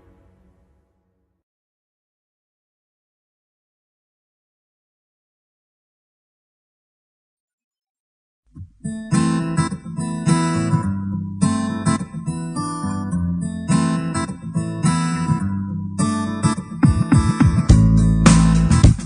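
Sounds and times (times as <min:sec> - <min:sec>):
acoustic guitar strummed chords: 0:08.7 - 0:19.0.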